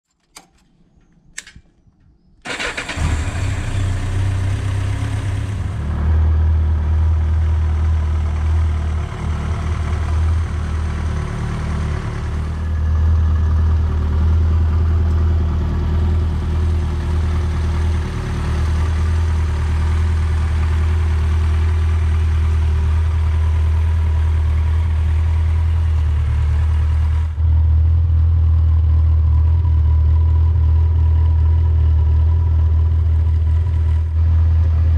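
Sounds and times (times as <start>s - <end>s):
starter clicks: 0.1s - 2.9s
motorcycle engine idling: 2.5s - 34.9s.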